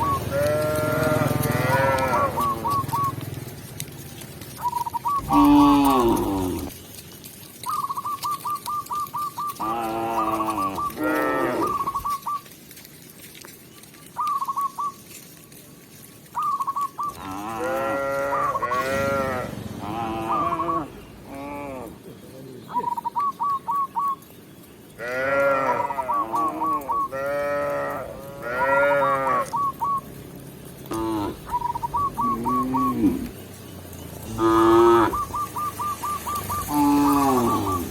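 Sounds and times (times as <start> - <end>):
cows mooing: 0.0 - 2.9, 5.2 - 6.8, 9.5 - 12.0, 17.1 - 22.0, 25.0 - 29.8, 30.8 - 33.4, 34.2 - 37.9.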